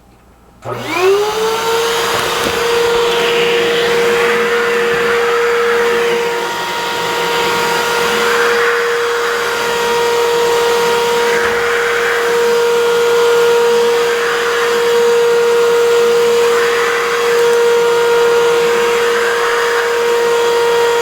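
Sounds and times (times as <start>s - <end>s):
vacuum cleaner running: 0.6s - 21.0s.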